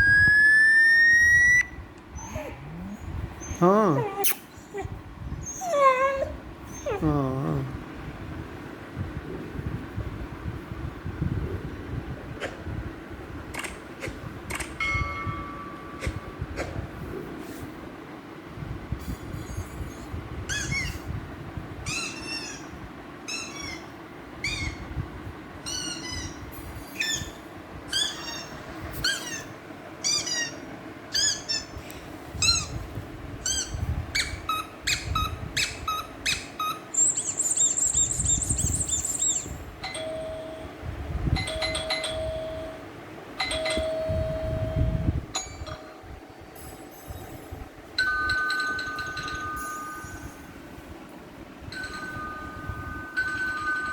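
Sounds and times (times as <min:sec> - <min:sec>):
electronic falling chirps: 0:00.0 - 0:01.8
doorbell-like tones: 0:41.4 - 0:45.8.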